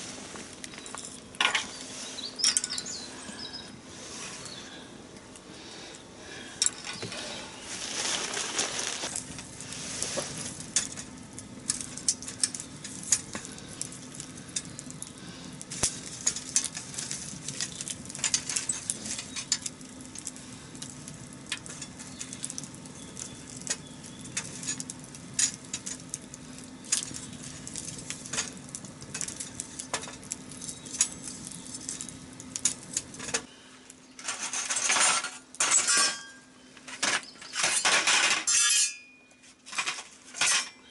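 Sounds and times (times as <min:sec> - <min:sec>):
wood fire crackling and popping: 0:00.0 - 0:03.4, 0:04.4 - 0:38.3
rushing hiss of flame: 0:07.6 - 0:33.2.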